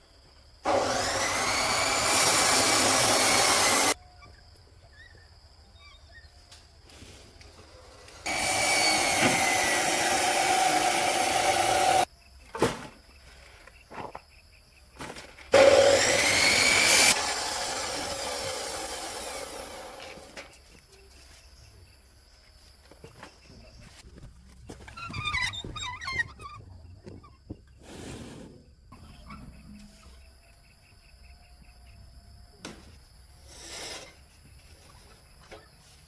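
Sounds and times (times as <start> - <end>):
power tool whirring: 0.7 - 4.0, 7.9 - 12.1, 15.5 - 20.4.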